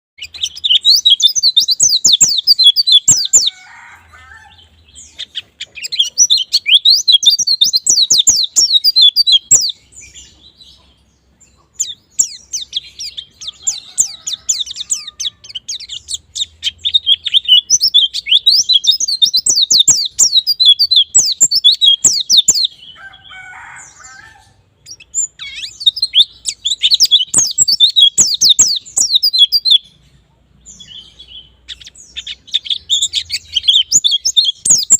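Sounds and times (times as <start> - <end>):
bird twittering song: 0.2 - 34.9.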